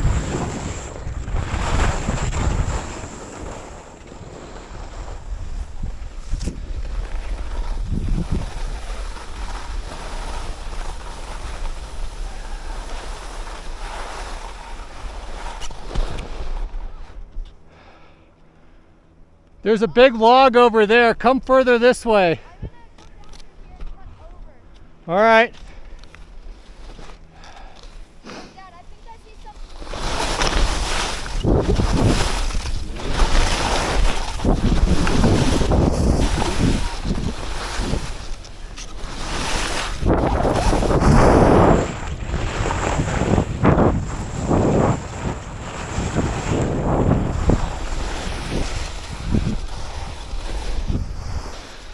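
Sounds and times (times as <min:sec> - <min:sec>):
wind rushing over microphone: 0:00.0 - 0:15.4, 0:29.7 - 0:51.9
skis hissing over snow: 0:00.0 - 0:17.0, 0:26.5 - 0:51.9.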